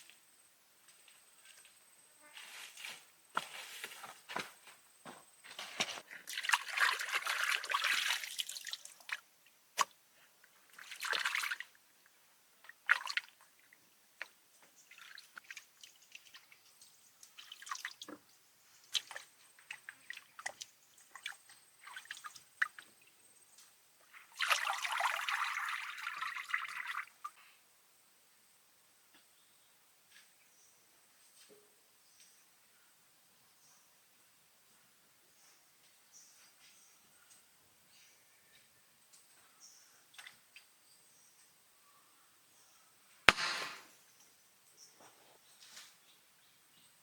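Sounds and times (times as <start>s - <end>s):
water pouring and trickling: 6.2s - 9.3s, 24.2s - 27.2s.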